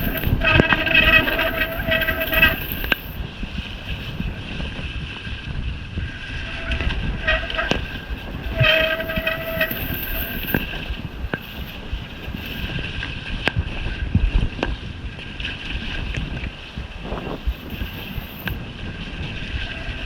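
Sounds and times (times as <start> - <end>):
bike disc brakes squealing: 0.0 - 3.2, 6.3 - 12.7
tyre noise: 0.0 - 5.3, 6.2 - 13.0, 15.8 - 18.6
rushing wind: 0.0 - 20.0.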